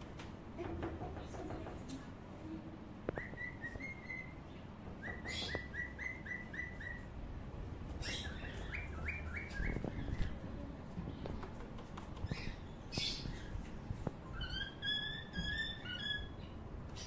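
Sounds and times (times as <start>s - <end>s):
bird chirping quickly: 3.2s - 7.1s, 8.0s - 10.4s, 14.3s - 17.0s.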